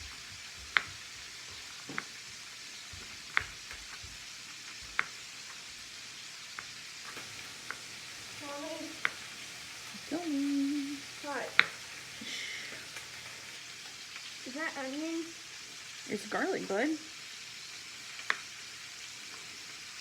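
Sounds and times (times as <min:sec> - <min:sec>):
chicken sizzling in a pan: 0:00.0 - 0:20.0
knife tapping on cutting board: 0:00.4 - 0:01.2, 0:01.8 - 0:02.1, 0:03.1 - 0:04.2.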